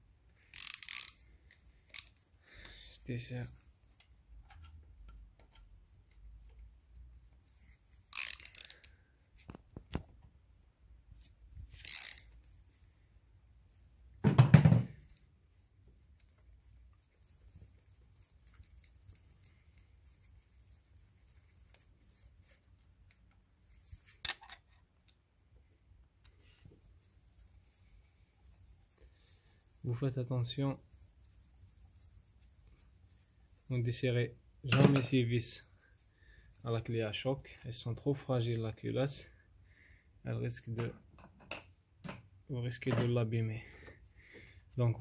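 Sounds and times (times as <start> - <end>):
wrench metallic clicks and scrapes: 0.4 - 2.2, 8.1 - 9.0, 11.7 - 12.5, 24.0 - 24.8.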